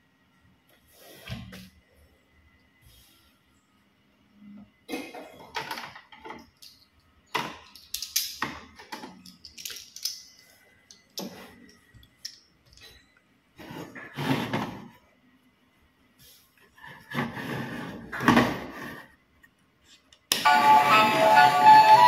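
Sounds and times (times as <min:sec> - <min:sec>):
plastic toy trains clacking: 0:05.5 - 0:12.8.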